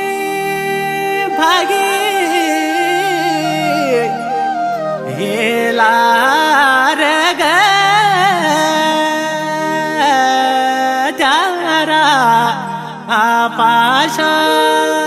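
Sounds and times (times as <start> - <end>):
folk song melody: 0.2 - 7.7.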